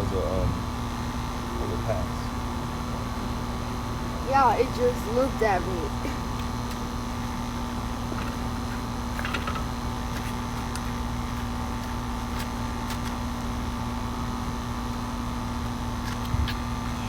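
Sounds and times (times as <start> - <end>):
low rumble: 0.0 - 0.9
mechanical hum: 0.0 - 17.0.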